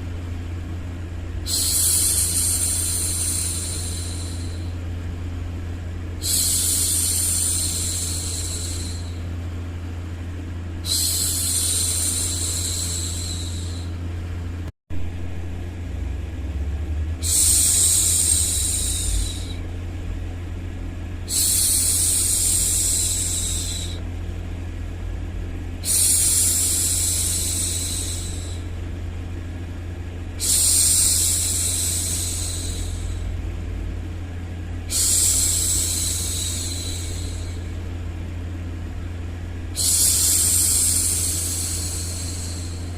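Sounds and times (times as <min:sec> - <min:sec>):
steady low rumbling noise: 0:00.0 - 0:42.9
woman shushing: 0:01.5 - 0:04.7, 0:10.8 - 0:14.0, 0:17.2 - 0:19.6, 0:21.3 - 0:24.0, 0:34.9 - 0:37.8, 0:39.7 - 0:42.9.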